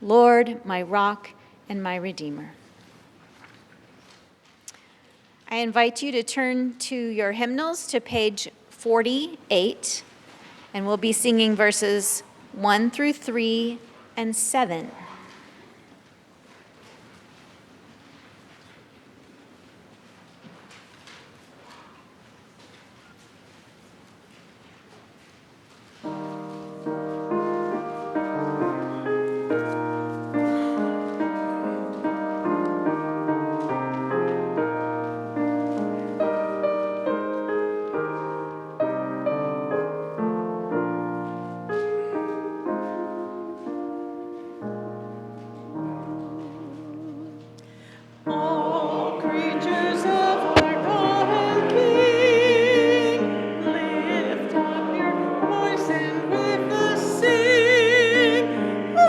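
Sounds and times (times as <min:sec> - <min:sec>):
piano playing slow chords: 0:26.0 - 0:59.0
congregation singing a hymn: 0:48.2 - 0:59.0.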